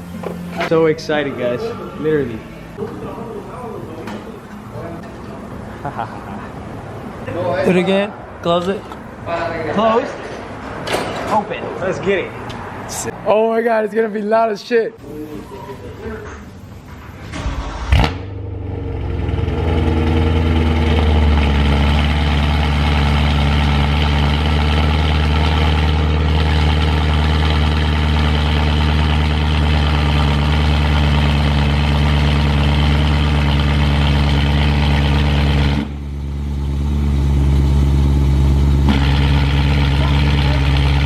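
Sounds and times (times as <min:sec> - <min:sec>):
car engine idling loudly: 0:19.0 - 0:41.0.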